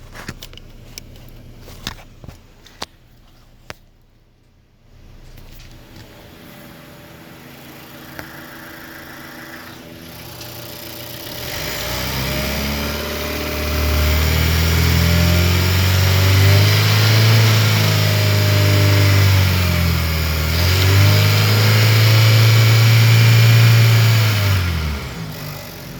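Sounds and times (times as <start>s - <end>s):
car engine idling and revving: 6.1s - 25.9s.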